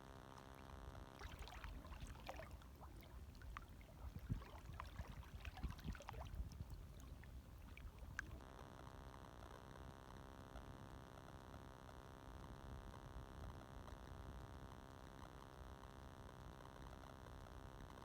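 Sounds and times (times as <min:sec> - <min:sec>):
small waves lapping: 0:00.4 - 0:08.4.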